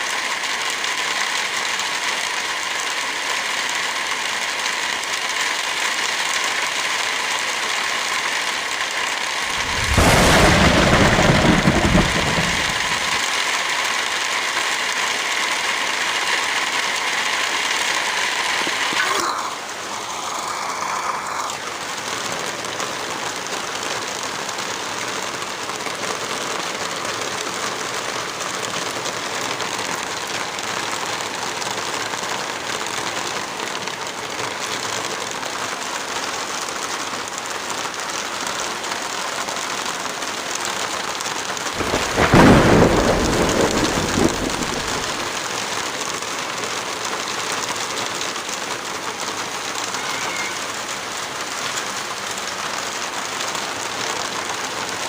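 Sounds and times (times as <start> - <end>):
heavy rain hissing: 0.0 - 55.0
deep rumble of thunder: 9.5 - 13.2, 41.8 - 45.4.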